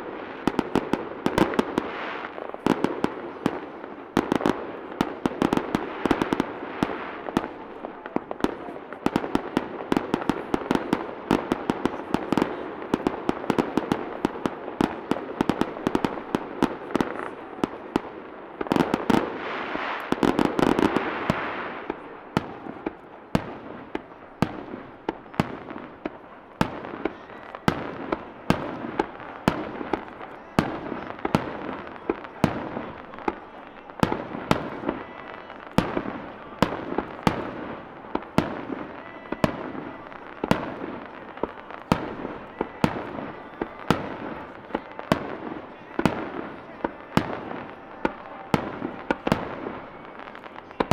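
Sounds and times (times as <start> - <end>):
fireworks bursting: 0.0 - 50.9.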